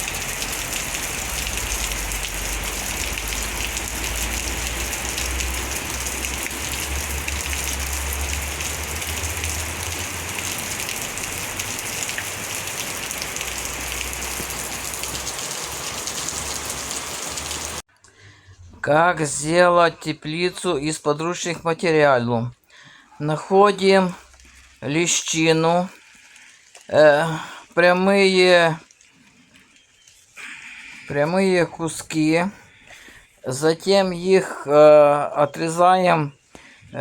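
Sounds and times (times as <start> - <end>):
heavy rain falling: 0.0 - 17.8.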